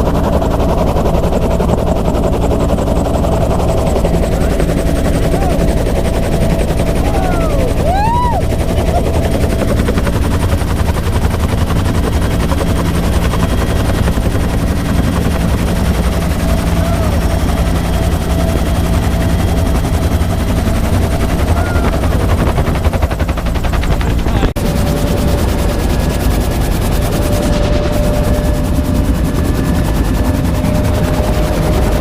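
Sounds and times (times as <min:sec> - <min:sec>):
helicopter rotor beating: 0:00.0 - 0:32.0
turbine whine: 0:00.0 - 0:32.0.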